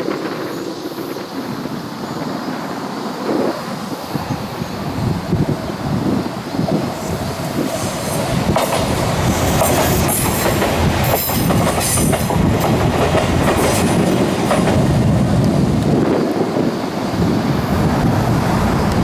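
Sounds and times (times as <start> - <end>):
electric train passing: 0.0 - 19.0
wheels clacking over rail joints: 6.1 - 17.2.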